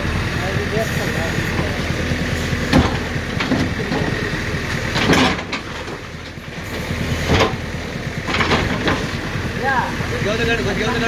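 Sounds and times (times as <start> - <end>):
demolition crashing knocks: 0.0 - 6.2
diesel engine running: 0.0 - 11.0.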